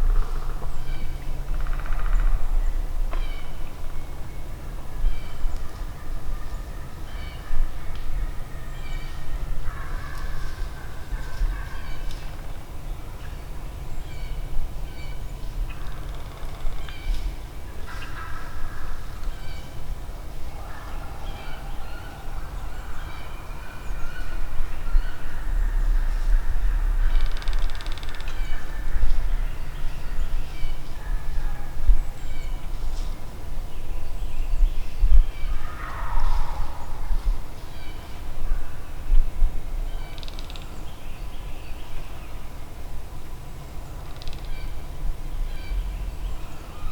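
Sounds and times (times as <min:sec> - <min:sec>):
steady low rumble: 0:23.4 - 0:40.0
low rumble: 0:24.2 - 0:27.7.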